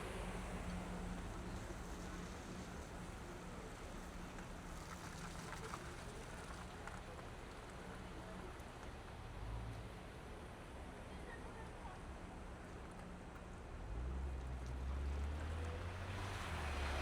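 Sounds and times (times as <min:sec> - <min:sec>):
low engine hum: 0:00.0 - 0:06.2
road noise: 0:13.7 - 0:17.0.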